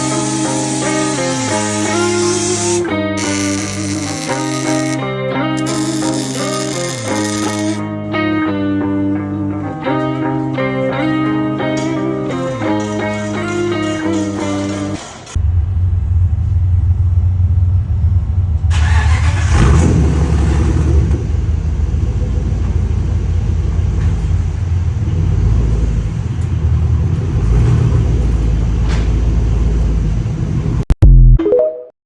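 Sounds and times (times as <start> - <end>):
truck exhaust rumbling: 0.0 - 5.0, 11.1 - 31.4.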